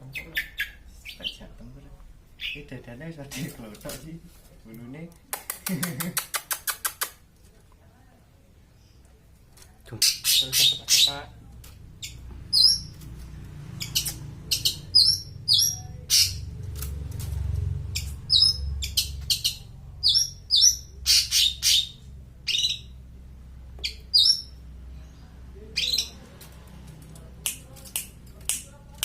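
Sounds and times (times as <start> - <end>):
shrike calling: 10.0 - 11.3, 13.8 - 16.5.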